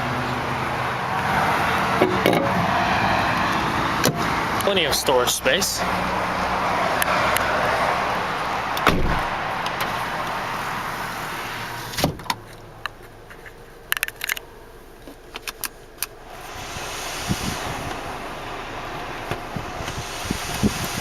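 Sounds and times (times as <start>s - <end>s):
dull thump: 8.8s - 9.3s
car door thumping shut: 8.8s - 10.0s, 12.0s - 12.4s.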